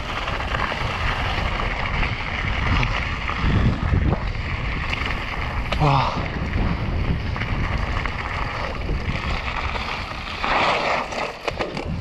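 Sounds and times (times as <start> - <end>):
bike tyre noise: 0.0 - 12.0
wind rushing over microphone: 0.0 - 12.0.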